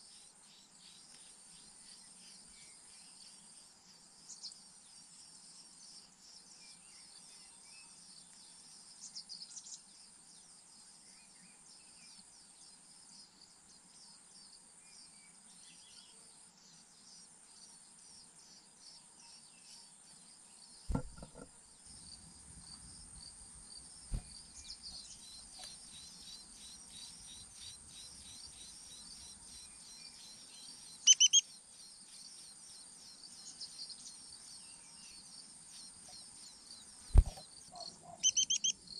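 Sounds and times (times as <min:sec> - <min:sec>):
insect chorus: 0:00.0 - 0:38.9
bird chirps: 0:20.9 - 0:21.5, 0:24.1 - 0:33.9, 0:34.8 - 0:38.9
dull low thumps: 0:20.9 - 0:21.5.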